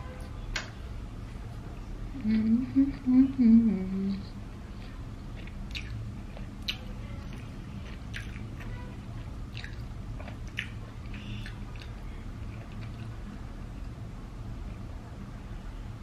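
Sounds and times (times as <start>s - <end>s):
low room hum: 0.0s - 16.0s
wet chewing clicks and smacks: 4.8s - 13.4s.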